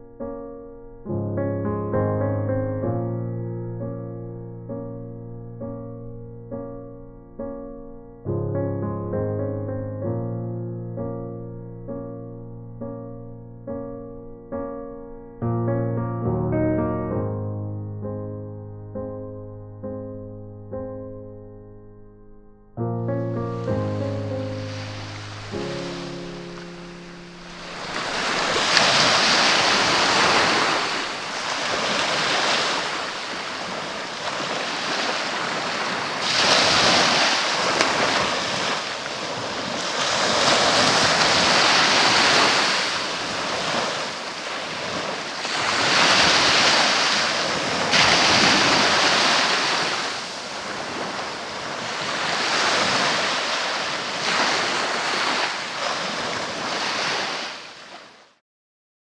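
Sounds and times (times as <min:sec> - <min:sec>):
sea waves breaking: 0:23.5 - 0:58.2.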